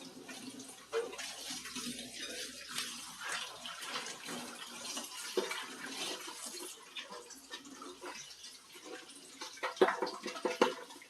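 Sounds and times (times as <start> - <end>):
water splashing and running: 0.0 - 11.0
dishes clattering: 9.4 - 11.0.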